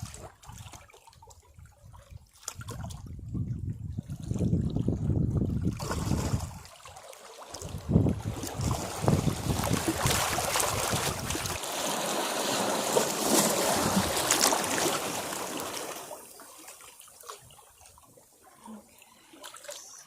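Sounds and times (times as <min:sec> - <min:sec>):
sea wave breaking against rocks: 0:08.2 - 0:16.3.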